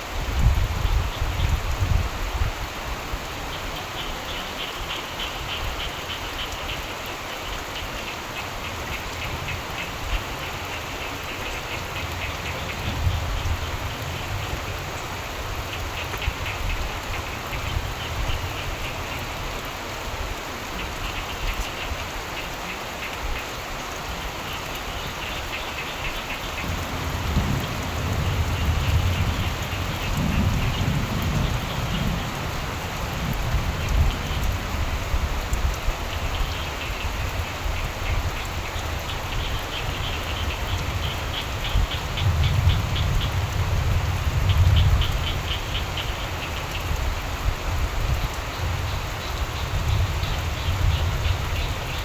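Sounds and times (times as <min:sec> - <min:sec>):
steady rain falling: 0:00.0 - 0:52.0
frogs calling: 0:03.5 - 0:19.8, 0:20.7 - 0:52.0
low rumble of thunder: 0:11.8 - 0:18.8, 0:26.4 - 0:52.0.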